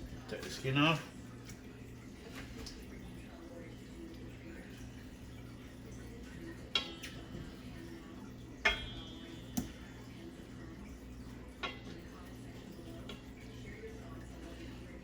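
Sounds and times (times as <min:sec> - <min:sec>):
utensil clinking on metal cookware: 0:08.5 - 0:09.8, 0:11.3 - 0:13.3.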